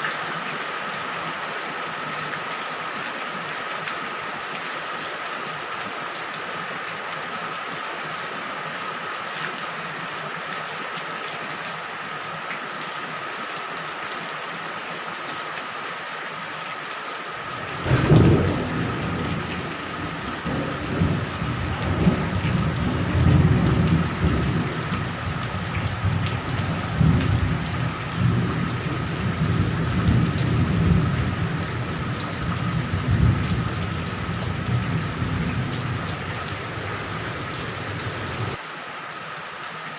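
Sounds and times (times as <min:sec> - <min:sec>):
steady rain falling: 0:00.0 - 0:39.9
thunder cracking and rumbling: 0:17.5 - 0:38.6.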